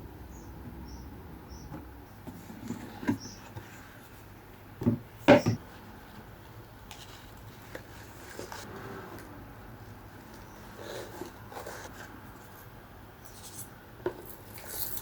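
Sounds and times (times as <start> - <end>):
objects knocking and clattering: 4.8 - 5.6.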